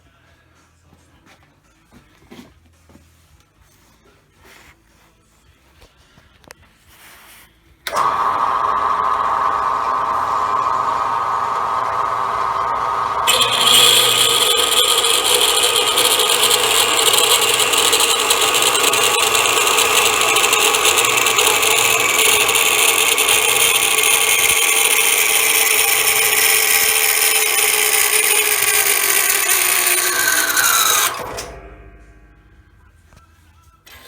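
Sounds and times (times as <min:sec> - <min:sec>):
band saw running: 0:07.9 - 0:32.3.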